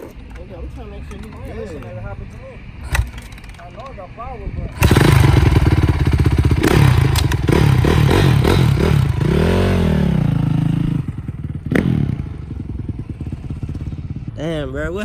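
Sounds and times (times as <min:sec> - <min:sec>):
dirt bike engine revving: 0:02.8 - 0:03.8, 0:04.7 - 0:14.8.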